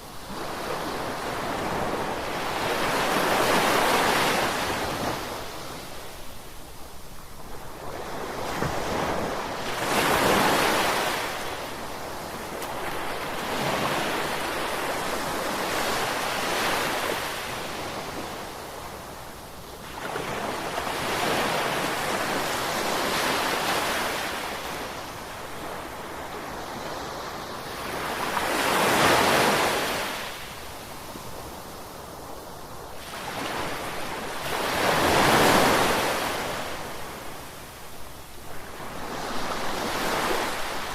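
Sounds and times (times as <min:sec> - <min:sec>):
sea waves breaking ashore: 0:07.6 - 0:18.5.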